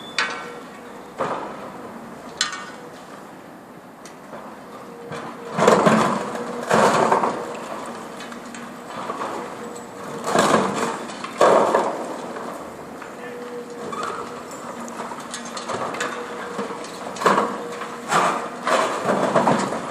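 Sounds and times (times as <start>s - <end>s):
concrete crashing: 9.0s - 12.4s, 15.0s - 19.9s.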